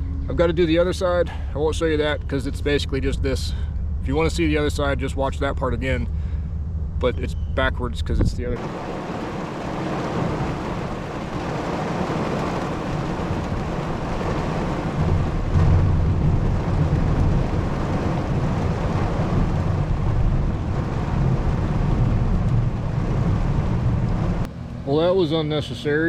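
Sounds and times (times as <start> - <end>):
deep thunder rumble: 0.2 - 24.5
rain hissing: 8.6 - 24.5.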